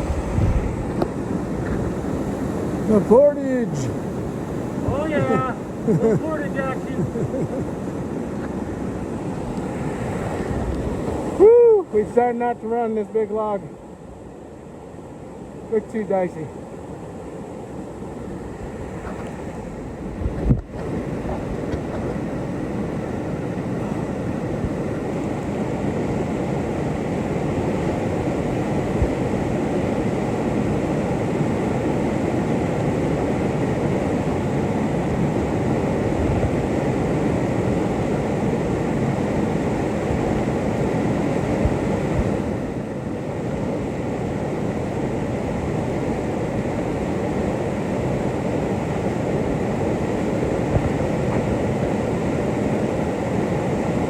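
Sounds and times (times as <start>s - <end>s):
river rapids rushing: 0.0s - 13.1s.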